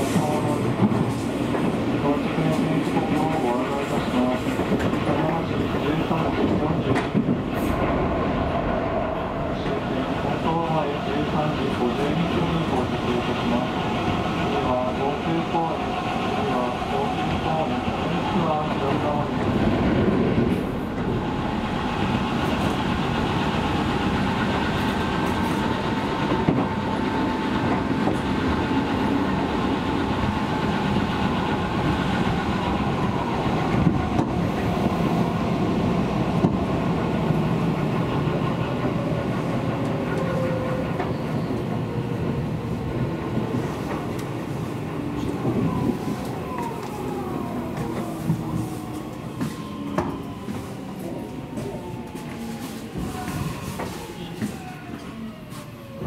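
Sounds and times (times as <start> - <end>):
clacks over rail joints: 0.0 - 8.0
train wheels rumbling on rail: 0.0 - 56.0.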